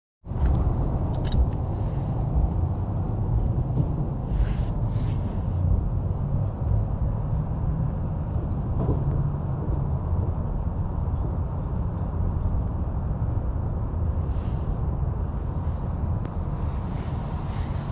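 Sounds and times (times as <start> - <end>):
diesel locomotives rumbling: 0.2 - 17.9.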